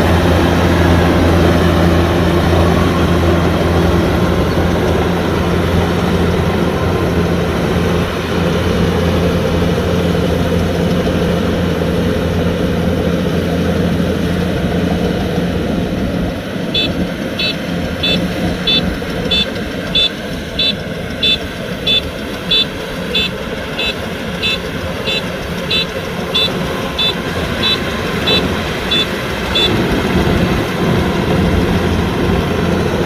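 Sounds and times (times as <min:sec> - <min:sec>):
diesel engine running: 0:00.0 - 0:33.0
electronic warning beeper: 0:16.8 - 0:29.8.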